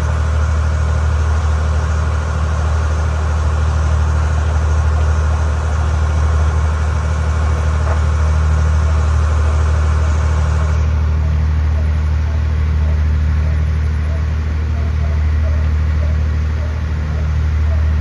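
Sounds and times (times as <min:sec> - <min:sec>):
boat engine drone: 0:00.0 - 0:18.0.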